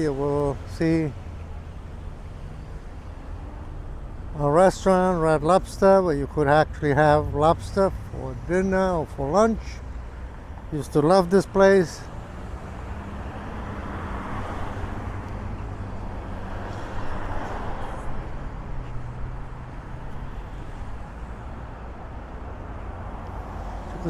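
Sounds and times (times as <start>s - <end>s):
road traffic: 0.0s - 24.0s
vehicles passing by: 0.0s - 24.0s.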